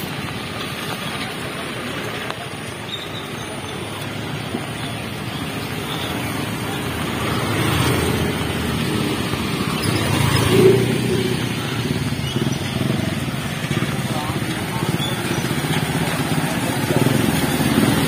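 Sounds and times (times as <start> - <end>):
vehicle engine passing: 3.9 - 18.0.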